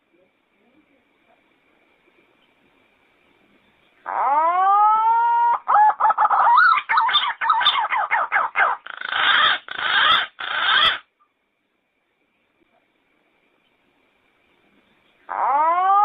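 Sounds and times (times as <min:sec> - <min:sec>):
pigeon calling with warbling whistles: 0:04.1 - 0:11.0.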